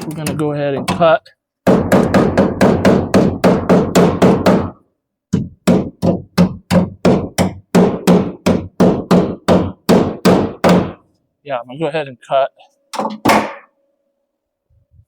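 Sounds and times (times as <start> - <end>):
hammer striking sheet metal: 13.0 - 13.7.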